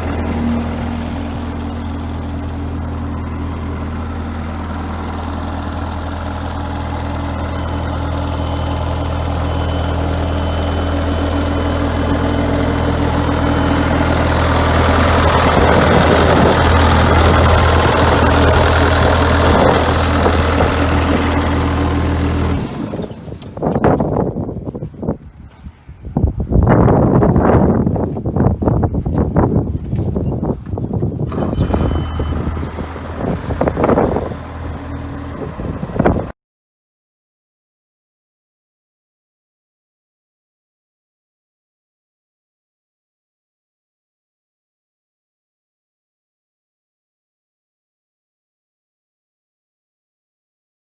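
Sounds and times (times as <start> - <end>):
diesel engine running: 0.0 - 36.4.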